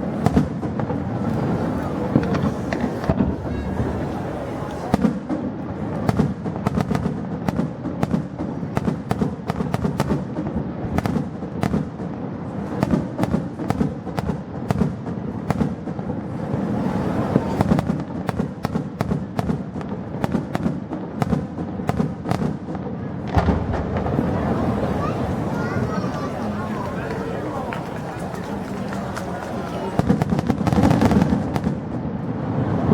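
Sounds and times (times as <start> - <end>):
fireworks cracks and bangs: 0.0 - 32.9.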